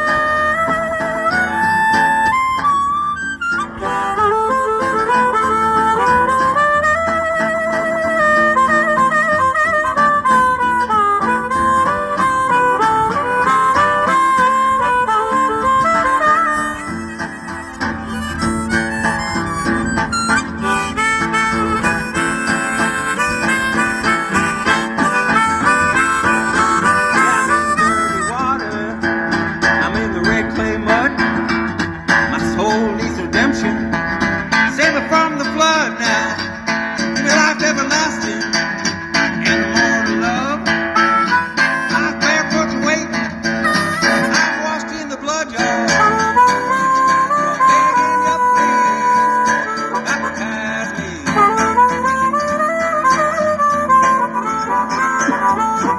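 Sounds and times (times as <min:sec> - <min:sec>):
harmonica solo: 0:00.0 - 0:55.9
strummed acoustic guitar: 0:00.0 - 0:55.9.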